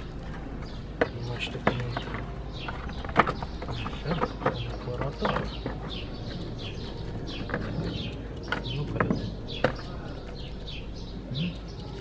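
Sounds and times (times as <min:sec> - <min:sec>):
bird chirping: 0:00.0 - 0:12.0
clicks and knocks on metal parts: 0:00.2 - 0:06.6.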